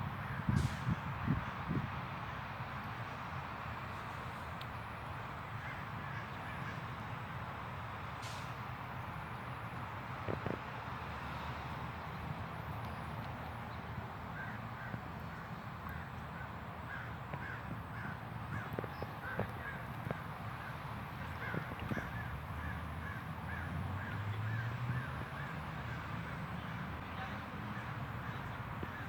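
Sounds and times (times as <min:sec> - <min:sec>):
low outdoor rumble: 0:00.0 - 0:29.0.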